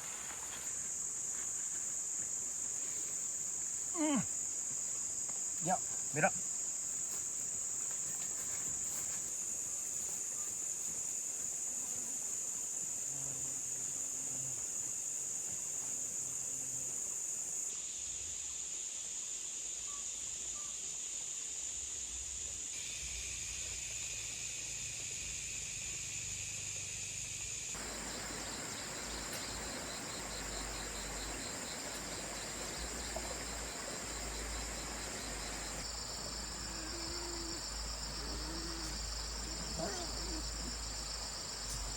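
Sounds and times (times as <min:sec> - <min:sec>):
insect chorus drone: 0:00.0 - 0:41.9.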